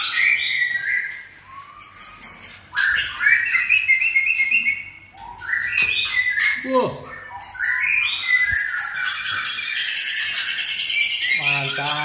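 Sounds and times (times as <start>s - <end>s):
bird singing whistled notes: 0.0s - 12.0s.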